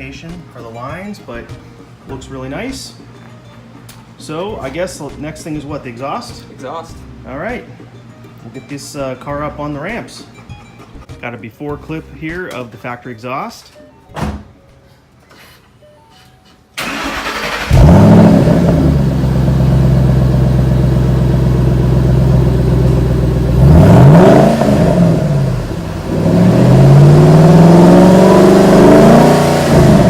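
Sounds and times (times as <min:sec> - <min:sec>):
car engine idling and revving: 0:17.0 - 0:30.0.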